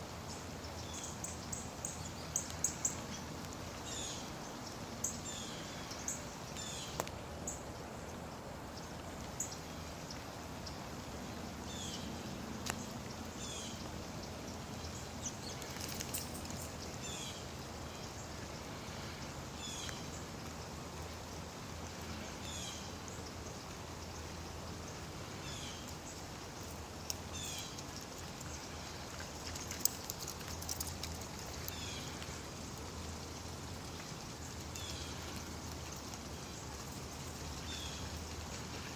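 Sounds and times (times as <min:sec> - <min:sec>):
steady rain falling: 0:00.0 - 0:38.9
bird chirping: 0:11.7 - 0:21.4.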